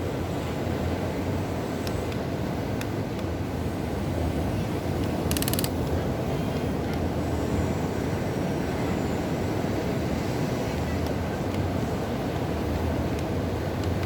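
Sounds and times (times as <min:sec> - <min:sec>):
fast rattle of clicks: 0:05.0 - 0:05.9.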